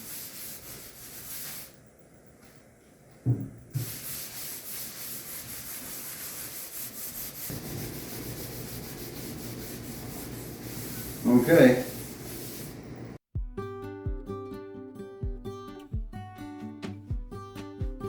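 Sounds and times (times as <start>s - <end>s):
rag rubbing on wood: 0.0s - 1.6s, 3.8s - 13.1s.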